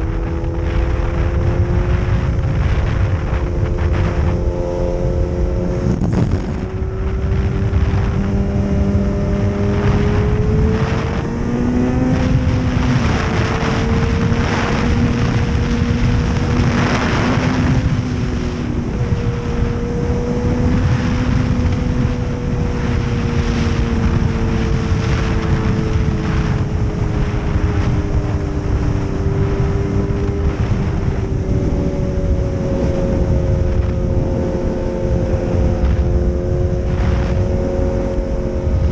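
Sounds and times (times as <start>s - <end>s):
motorcycle engine cruising: 0.0s - 38.9s
road noise: 0.0s - 38.9s
wind rush: 0.0s - 38.9s.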